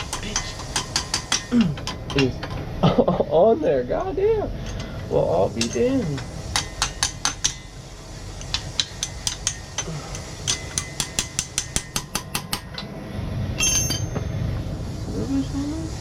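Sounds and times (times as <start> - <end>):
ringing metal clink: 5.6 - 7.8, 8.4 - 12.8, 13.6 - 14.4.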